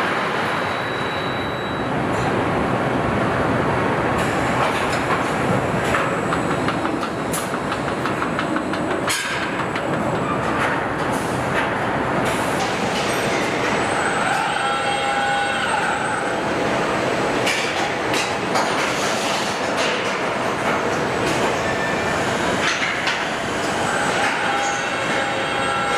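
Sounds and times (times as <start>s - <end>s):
machinery clanks and clicks: 4.1s - 14.6s, 17.4s - 25.9s.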